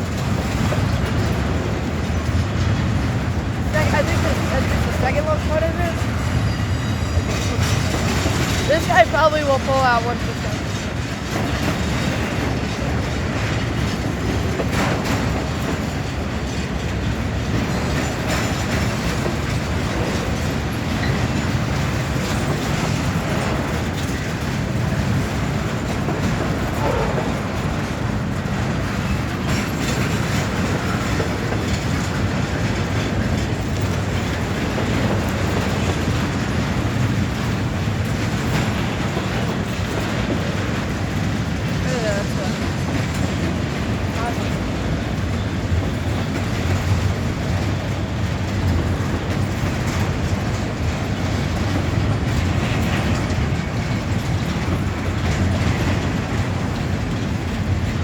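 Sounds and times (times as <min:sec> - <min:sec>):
freight train rumbling past: 0:00.0 - 0:58.0
wheels clacking over rail joints: 0:00.0 - 0:58.0.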